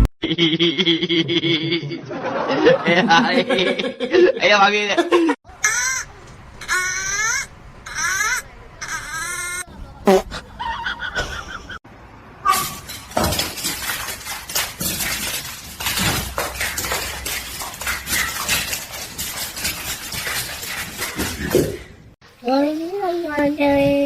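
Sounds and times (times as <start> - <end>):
clattering and knocking: 12.7 - 21.9.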